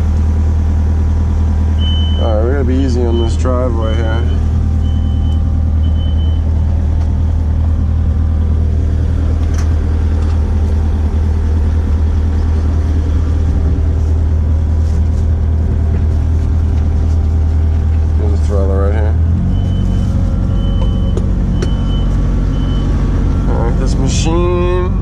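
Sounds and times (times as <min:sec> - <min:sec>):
diesel engine running: 0:00.0 - 0:25.0
short high beep: 0:01.8 - 0:02.3.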